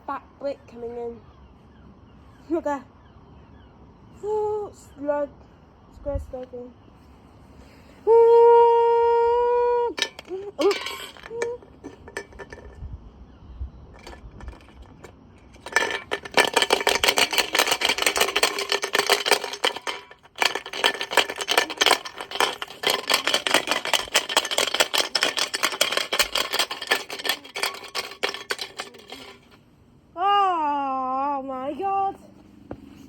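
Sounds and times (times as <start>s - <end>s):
brick banging in washing machine: 10.0s - 12.8s.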